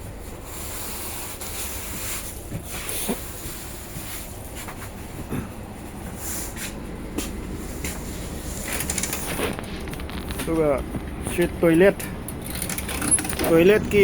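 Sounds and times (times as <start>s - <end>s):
train coach low rumble: 0.0s - 14.0s
knocks and rattles: 8.5s - 14.0s.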